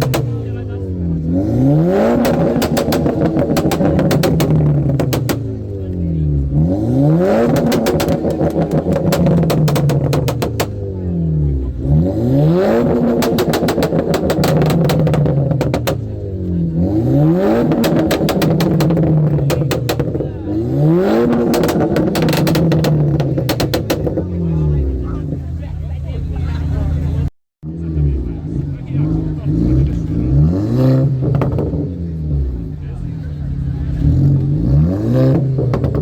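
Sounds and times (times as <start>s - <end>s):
exhaust crackling pops: 0.0s - 0.7s, 2.1s - 6.5s, 7.4s - 10.8s, 12.8s - 16.8s, 17.5s - 20.5s, 21.1s - 24.5s, 31.1s - 32.0s, 35.3s - 36.0s
car engine revving: 0.0s - 36.0s.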